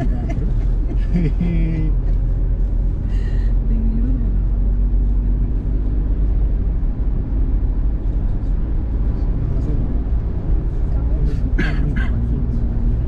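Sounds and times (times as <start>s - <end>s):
car tyres and engine rumbling: 0.0s - 13.0s.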